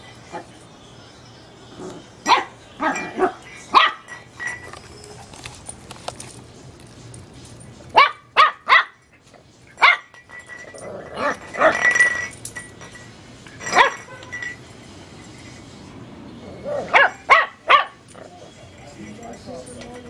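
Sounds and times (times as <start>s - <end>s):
puppy yapping: 16.6s - 18.4s.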